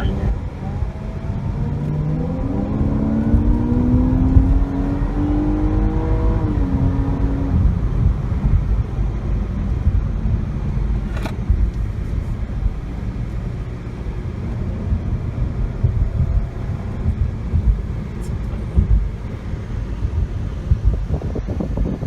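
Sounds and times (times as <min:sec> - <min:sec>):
car engine running steadily: 0:00.0 - 0:22.0
low road rumble: 0:00.0 - 0:22.0
sharp click: 0:11.1 - 0:11.8.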